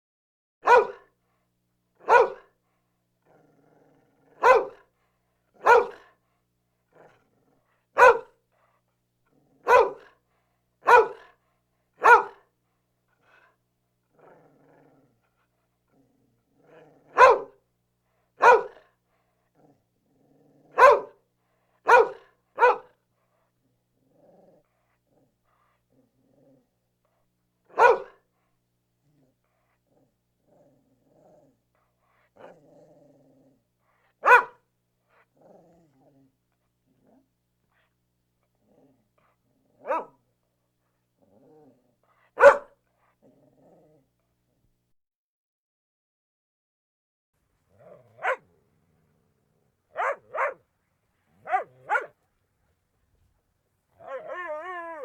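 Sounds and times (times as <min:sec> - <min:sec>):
dog barking: 0:00.6 - 0:01.1, 0:02.0 - 0:02.5, 0:04.4 - 0:04.8, 0:05.6 - 0:06.1, 0:08.0 - 0:08.4, 0:09.6 - 0:10.2, 0:10.8 - 0:11.4, 0:12.0 - 0:12.4, 0:17.1 - 0:17.6, 0:18.4 - 0:18.9, 0:20.7 - 0:21.2, 0:21.8 - 0:23.0, 0:27.7 - 0:28.2, 0:34.2 - 0:34.6, 0:39.8 - 0:40.2, 0:42.3 - 0:42.8, 0:47.8 - 0:48.6, 0:49.9 - 0:50.6, 0:51.4 - 0:52.2, 0:54.0 - 0:55.0
dog growling low: 0:03.2 - 0:04.9, 0:06.9 - 0:07.7, 0:13.2 - 0:17.2, 0:18.8 - 0:20.8, 0:23.9 - 0:26.8, 0:29.0 - 0:34.2, 0:35.1 - 0:37.3, 0:38.5 - 0:40.2, 0:41.2 - 0:42.2, 0:43.0 - 0:44.2, 0:47.6 - 0:52.2, 0:54.0 - 0:55.0.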